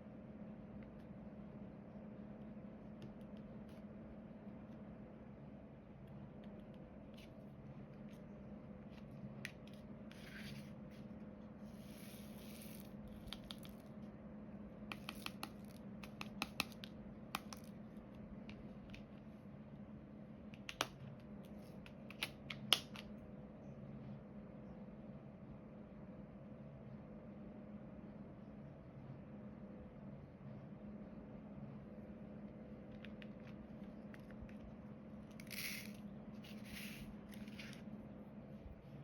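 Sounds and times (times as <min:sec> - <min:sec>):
steady low hum: 0:00.0 - 0:39.0
small clicks and taps: 0:13.2 - 0:13.8, 0:14.9 - 0:17.8, 0:20.5 - 0:21.2.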